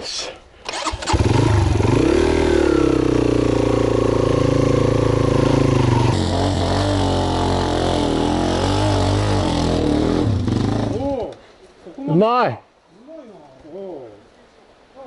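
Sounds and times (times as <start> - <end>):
motorcycle engine revving: 0.7 - 11.0.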